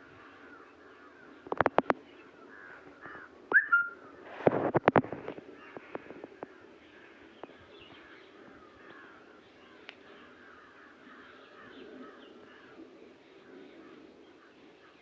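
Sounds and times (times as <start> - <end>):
faint bird chirping: 0.2 - 4.2
bird whistled note: 3.5 - 4.0.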